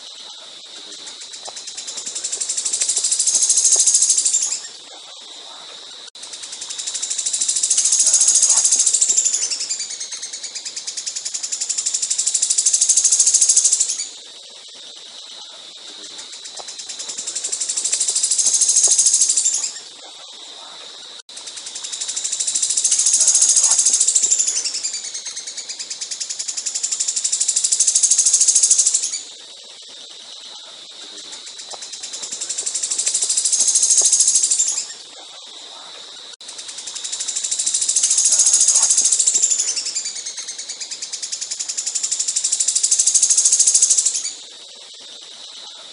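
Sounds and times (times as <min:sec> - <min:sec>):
songbird trilling: 0:01.2 - 0:04.8, 0:06.8 - 0:14.1, 0:16.5 - 0:19.8, 0:22.4 - 0:29.2, 0:31.4 - 0:35.0, 0:36.8 - 0:44.3.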